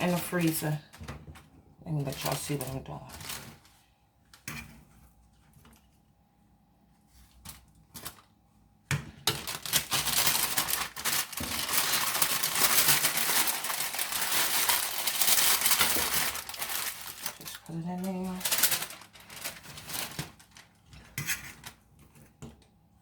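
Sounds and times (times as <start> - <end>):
parchment paper crinkling: 0.0 - 4.0, 9.2 - 22.4.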